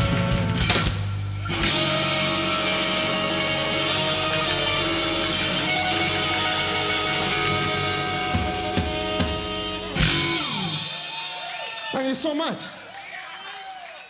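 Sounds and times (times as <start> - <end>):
bass guitar: 0.0 - 11.1
electric guitar: 0.0 - 11.6
drum kit playing: 0.0 - 12.0
cymbal wash: 0.7 - 11.6.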